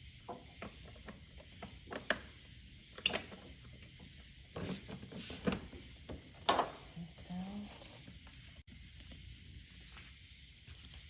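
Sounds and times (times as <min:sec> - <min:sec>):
clicks and knocks of car parts: 0:04.9 - 0:06.9.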